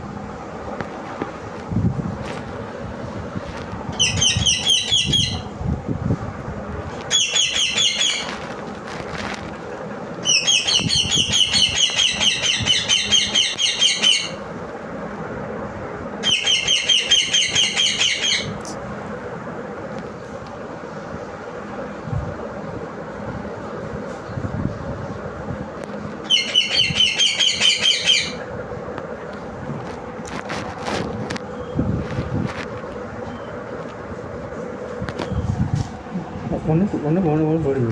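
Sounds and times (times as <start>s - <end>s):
parrot shrill chattering: 4.0s - 5.5s, 7.1s - 8.3s, 10.2s - 14.4s, 16.2s - 18.6s, 26.2s - 28.4s.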